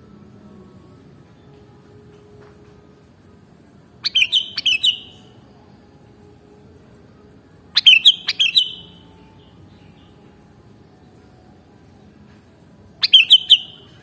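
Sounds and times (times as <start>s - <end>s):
bird singing whistled notes: 4.0s - 5.4s, 7.8s - 10.3s, 13.0s - 14.0s.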